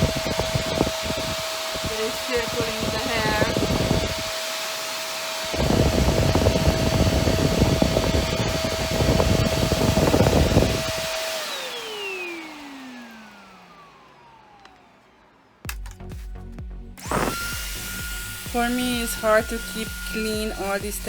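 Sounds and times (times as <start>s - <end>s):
suction rumbling over fabric: 0.0s - 4.4s, 5.5s - 11.2s, 17.0s - 21.0s
vacuum cleaner whining: 0.0s - 15.7s, 17.0s - 21.0s.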